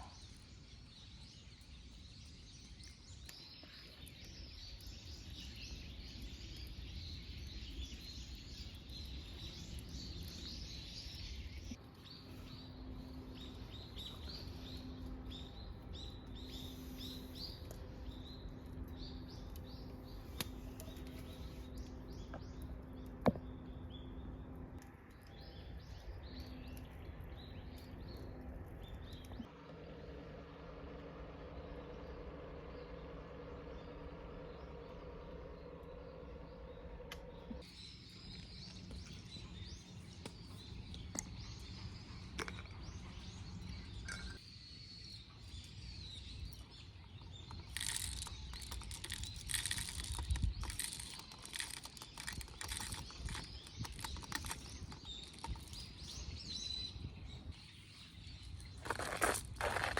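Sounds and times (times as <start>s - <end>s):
small birds chirping: 0.0s - 30.0s, 31.5s - 59.9s
low outdoor rumble: 0.0s - 59.9s.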